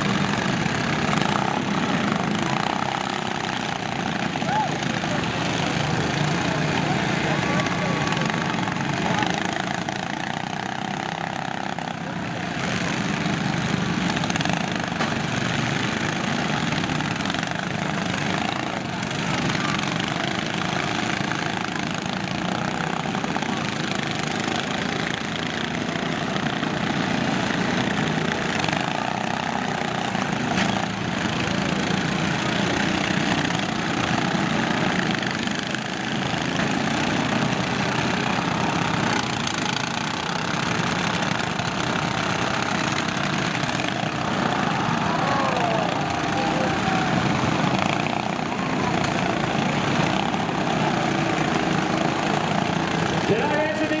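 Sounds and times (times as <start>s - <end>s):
lawn tractor engines running: 0.0s - 54.0s
tractors colliding knocks: 12.6s - 17.2s, 24.2s - 54.0s.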